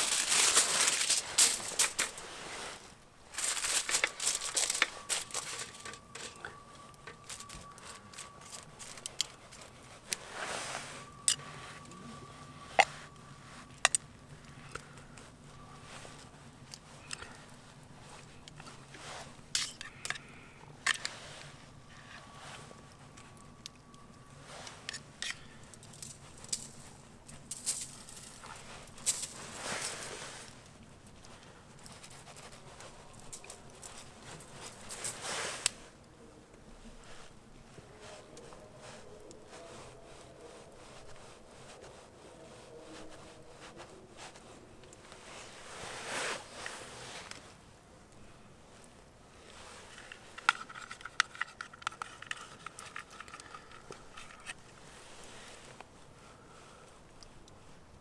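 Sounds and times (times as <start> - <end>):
small objects clicking and tapping: 0.0 - 2.3, 3.3 - 9.8, 18.3 - 21.2, 22.8 - 30.1, 31.2 - 35.2, 49.8 - 54.8
faint low background hum: 0.0 - 58.0
faint steady whine: 0.0 - 58.0
rustling and crinkling: 0.0 - 58.0.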